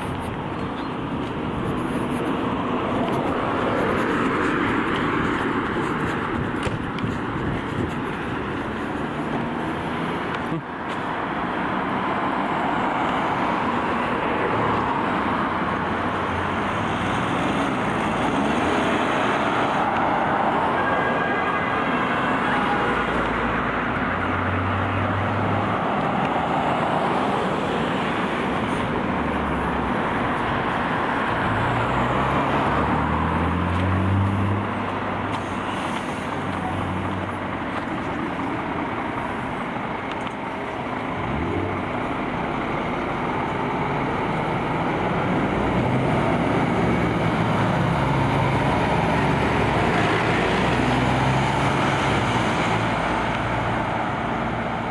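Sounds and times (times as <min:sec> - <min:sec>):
fire engines running: 0:00.0 - 0:54.9
wailing siren: 0:19.8 - 0:23.6.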